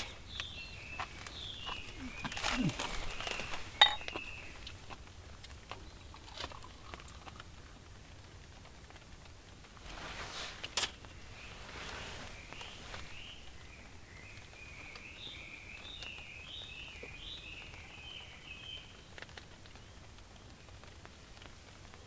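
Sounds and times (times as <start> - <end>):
small bird singing: 0.0 - 4.8, 11.1 - 19.2.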